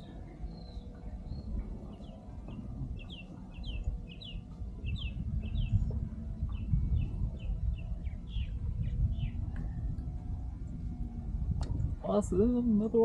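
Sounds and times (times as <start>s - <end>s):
bird chirping with falling pitch: 0.0s - 10.0s
low rumble: 0.0s - 13.0s.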